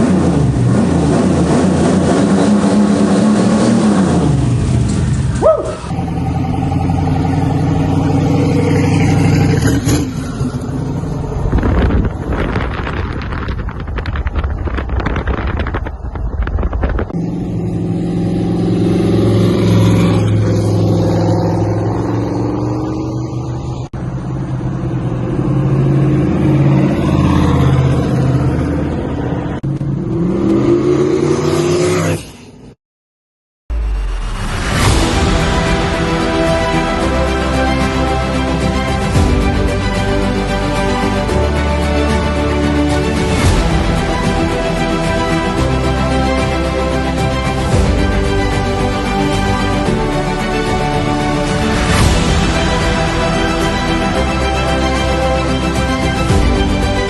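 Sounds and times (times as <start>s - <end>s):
car engine revving: 0.0s - 15.8s, 16.4s - 32.2s
rushing noise: 33.7s - 57.0s.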